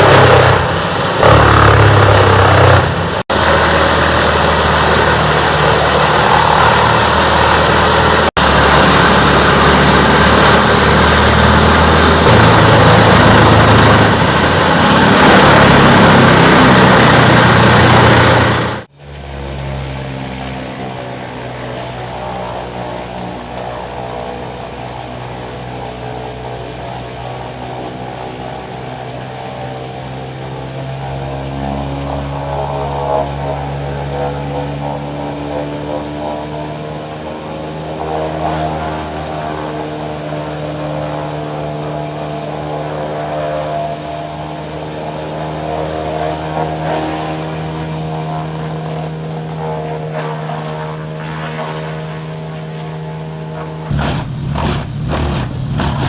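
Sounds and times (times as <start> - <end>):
wood chipper engine drone: 0.0 - 56.0
wood being chipped: 53.9 - 56.0.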